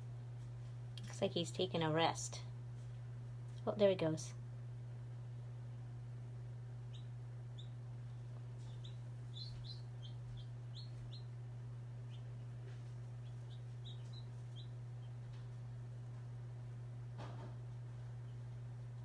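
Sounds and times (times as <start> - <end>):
steady low hum: 0.0 - 19.0
baby chicks peeping: 6.7 - 16.8, 17.6 - 18.8.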